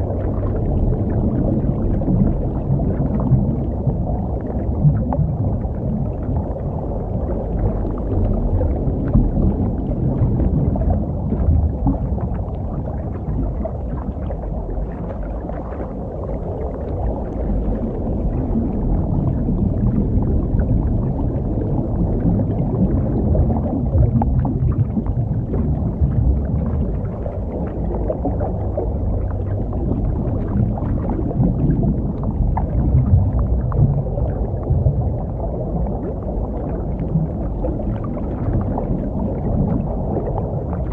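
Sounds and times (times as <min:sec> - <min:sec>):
muffled underwater rumble: 0:00.0 - 0:40.9.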